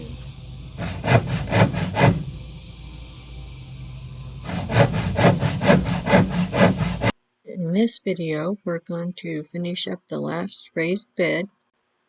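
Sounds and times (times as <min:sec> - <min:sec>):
steady low hum: 0:00.0 - 0:09.4
hand saw cutting wood: 0:00.8 - 0:02.3, 0:04.4 - 0:07.1.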